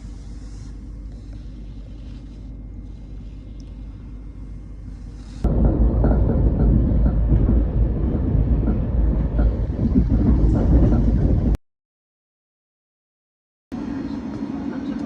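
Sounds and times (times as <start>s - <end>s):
faint regular ticks: 1.1s - 4.0s
train rumbling on rails: 2.8s - 11.6s.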